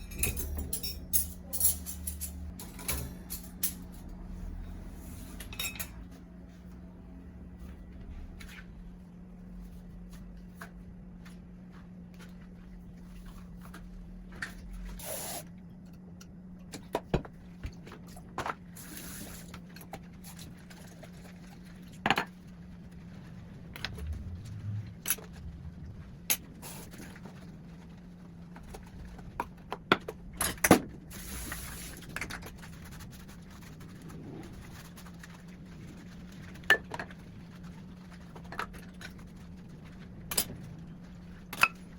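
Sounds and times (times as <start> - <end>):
dishes and utensils clinking: 0.0 - 4.1, 5.4 - 6.0
steady low hum: 0.0 - 41.9.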